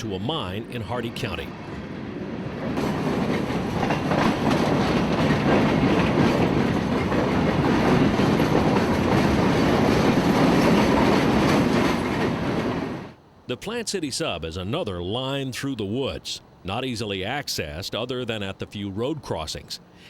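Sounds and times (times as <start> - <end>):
freight train wheels on rails: 1.4 - 13.2.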